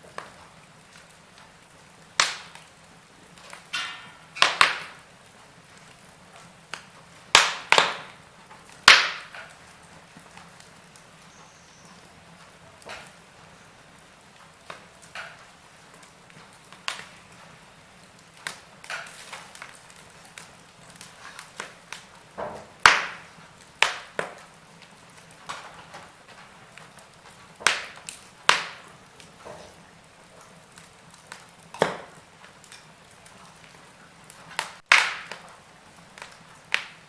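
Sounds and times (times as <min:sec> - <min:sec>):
faint steady hiss: 0:00.0 - 0:37.0
wood fire crackling: 0:00.0 - 0:37.0.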